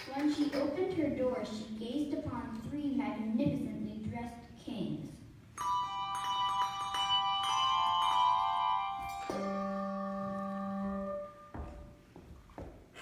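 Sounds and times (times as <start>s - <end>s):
tuned bells ringing: 5.6s - 10.4s.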